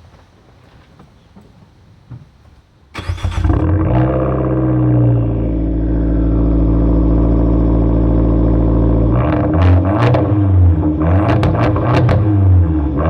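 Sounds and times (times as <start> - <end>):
car engine starting and idling: 2.9 - 13.0.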